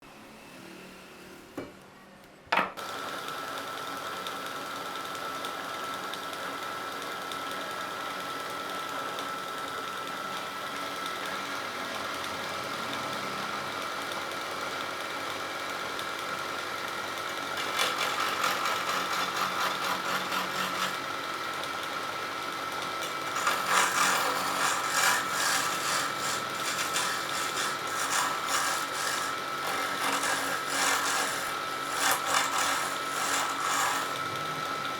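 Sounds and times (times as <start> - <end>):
wood lathe whining: 2.9 - 34.9
chisel scraping spinning wood: 16.6 - 21.9, 22.6 - 34.8
lathe starting knock: 23.0 - 34.6.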